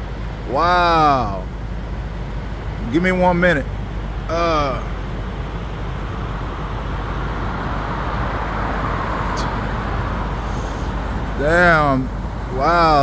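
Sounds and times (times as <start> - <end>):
waterfall roaring: 0.5 - 1.4, 4.3 - 4.9, 10.5 - 13.0.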